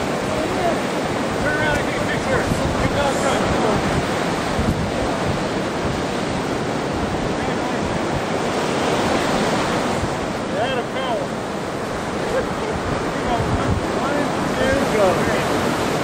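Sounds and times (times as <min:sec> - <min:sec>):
surf washing onto beach: 0:00.0 - 0:16.0
wind rushing across microphone: 0:00.0 - 0:16.0.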